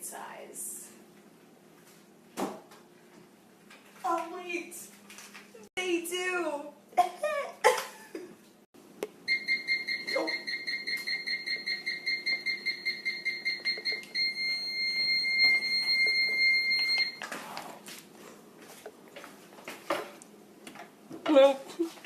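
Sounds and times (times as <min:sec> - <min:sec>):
electronic alarm beeping: 0:09.3 - 0:17.2.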